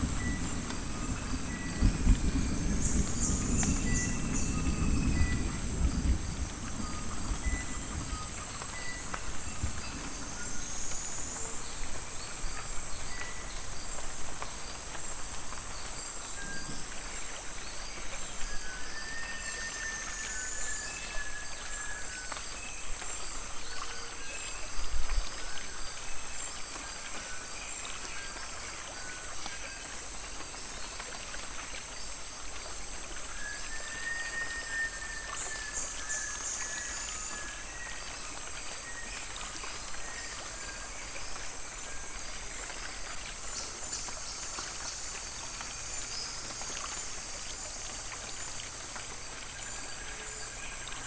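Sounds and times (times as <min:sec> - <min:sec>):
rain dripping through foliage: 0:00.0 - 0:51.0
short whistled bird calls: 0:33.3 - 0:38.0.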